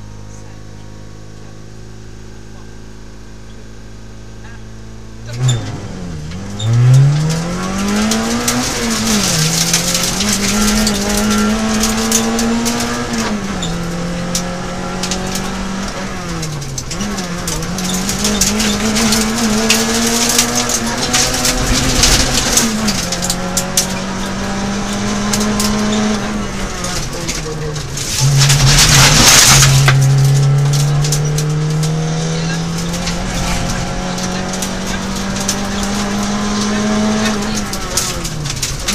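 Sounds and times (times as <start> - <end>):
car engine revving through gears: 0.0 - 38.9
tyre and road noise: 2.4 - 38.9.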